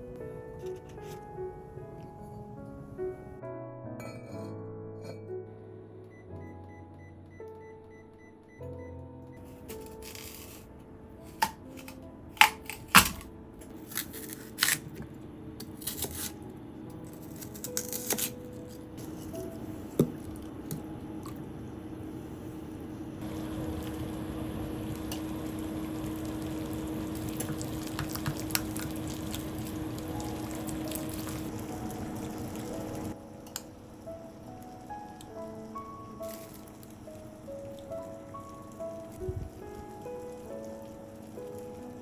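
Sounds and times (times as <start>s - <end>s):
low hum: 18.9s - 40.2s
steady hiss: 19.0s - 42.0s.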